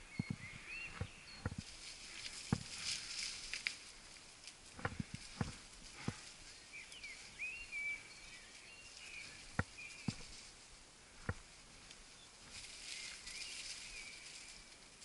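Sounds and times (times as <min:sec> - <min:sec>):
faint whistled bird calls: 0:06.4 - 0:10.3, 0:12.1 - 0:14.7.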